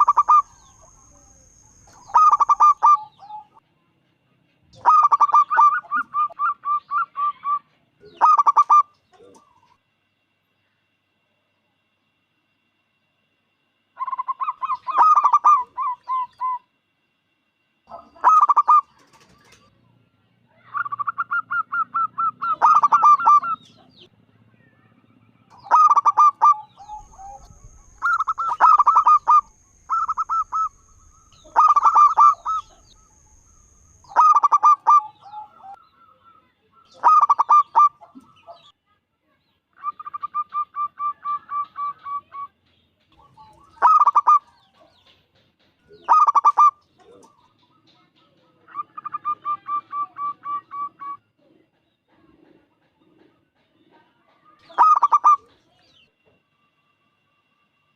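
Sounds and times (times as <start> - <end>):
dove cooing: 0.0 - 0.8, 1.9 - 3.6, 4.8 - 9.6, 14.0 - 16.6, 17.9 - 19.6, 20.7 - 23.7, 25.6 - 33.1, 34.1 - 35.8, 36.9 - 38.5, 43.2 - 44.5, 46.0 - 47.4, 54.6 - 55.5.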